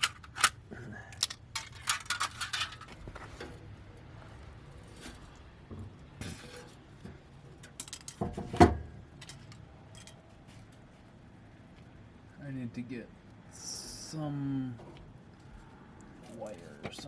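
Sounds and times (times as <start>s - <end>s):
metallic clinks and scrapes of can: 1.2s - 3.6s, 7.6s - 8.3s, 9.2s - 10.2s.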